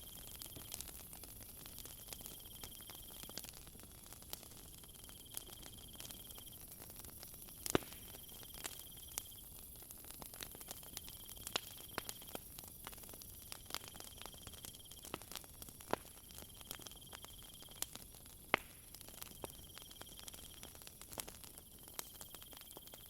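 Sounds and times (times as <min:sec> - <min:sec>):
crickets droning: 0:00.0 - 0:03.6, 0:04.6 - 0:20.8, 0:21.5 - 0:23.0
wood fire crackling: 0:00.0 - 0:23.0
cricket trill: 0:04.6 - 0:09.7, 0:10.7 - 0:18.4, 0:19.0 - 0:20.8.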